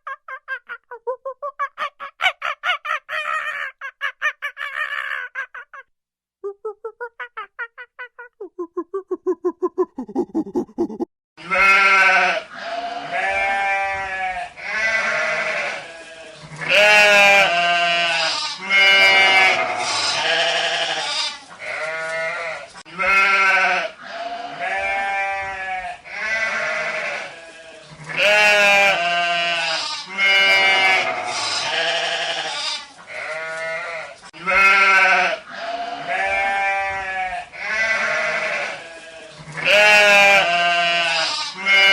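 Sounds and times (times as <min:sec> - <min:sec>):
sheep bleating: 0:11.4 - 0:41.9.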